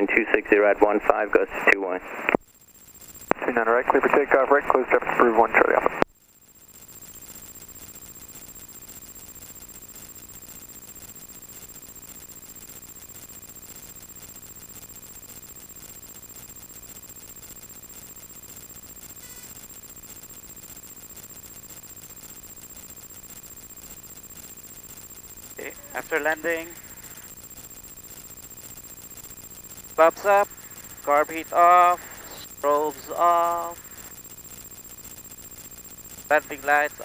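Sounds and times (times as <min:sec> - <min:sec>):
cockpit intercom hum and whine: 0:00.0 - 0:37.0
faint brief tone: 0:19.1 - 0:19.7
aircraft engine drone: 0:24.0 - 0:35.2, 0:36.2 - 0:37.0.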